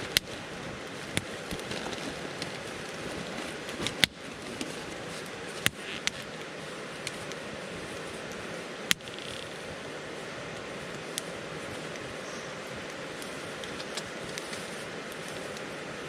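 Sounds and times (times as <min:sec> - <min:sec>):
fire pops: 0:00.0 - 0:07.4, 0:08.3 - 0:09.6, 0:12.8 - 0:15.7
campfire hissing and crackling: 0:00.0 - 0:16.0.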